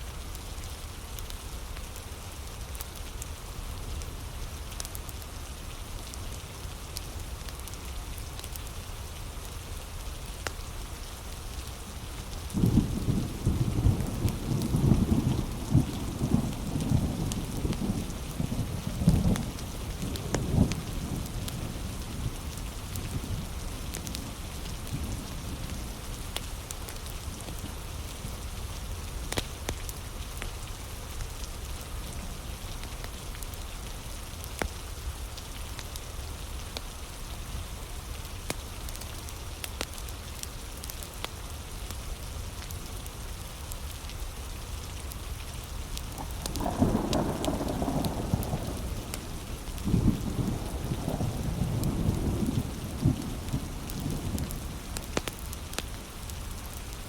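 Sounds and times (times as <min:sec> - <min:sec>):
heavy rain: 0:00.0 - 0:57.0
thunder rumbling: 0:12.5 - 0:21.3, 0:46.1 - 0:56.0.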